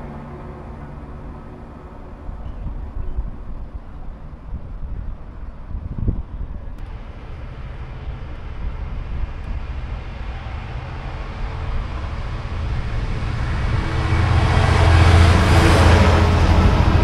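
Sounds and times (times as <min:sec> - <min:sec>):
diesel locomotive engine hum: 0:00.0 - 0:17.0
train rail noise: 0:00.0 - 0:17.0.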